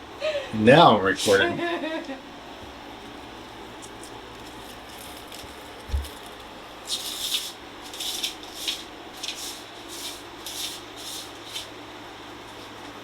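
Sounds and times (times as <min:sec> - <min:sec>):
rubbing strokes on a surface: 0:06.9 - 0:11.7.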